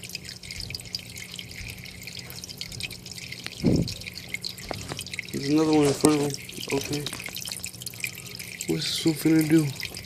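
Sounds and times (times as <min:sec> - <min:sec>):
water dripping and trickling: 0:00.0 - 0:10.0
steady low hum: 0:00.1 - 0:10.0.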